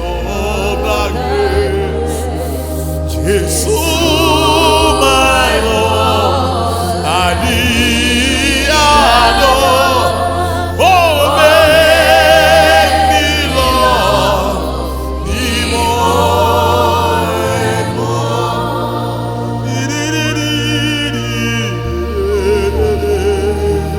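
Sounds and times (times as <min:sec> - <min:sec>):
low held accompaniment notes: 0:00.0 - 0:23.9
voices singing with vibrato: 0:00.0 - 0:23.9.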